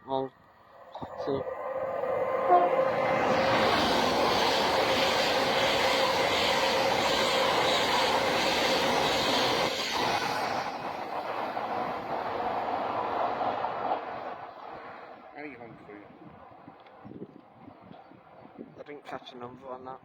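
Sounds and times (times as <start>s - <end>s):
train passing: 0.4s - 17.0s.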